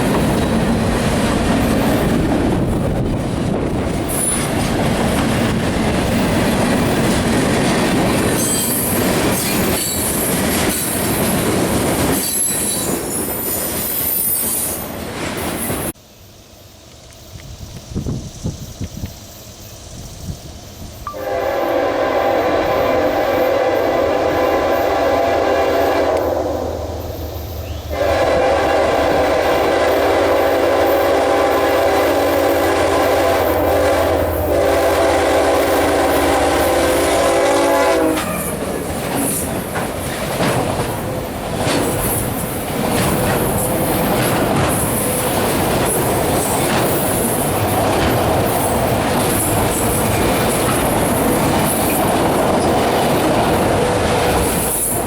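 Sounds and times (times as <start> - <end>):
train wheels clattering: 0.0 - 15.9, 27.0 - 55.0
locomotive air horn: 21.1 - 38.6.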